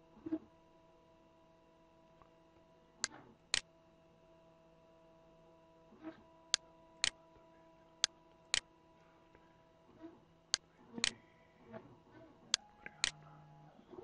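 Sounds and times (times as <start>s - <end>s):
faint electrical hum: 0.0s - 14.0s
computer mouse clicking: 12.8s - 13.2s.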